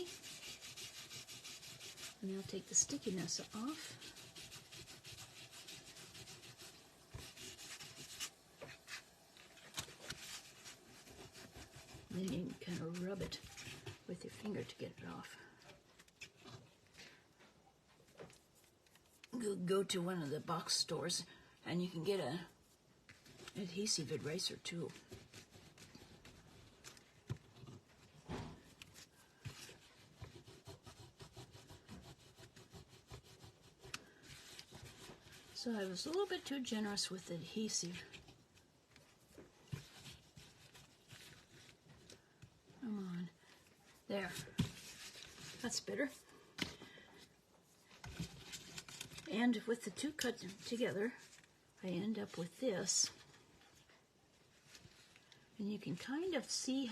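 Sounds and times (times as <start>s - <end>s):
rubbing strokes over cardstock: 0.0s - 15.4s, 22.6s - 27.0s, 27.8s - 38.4s.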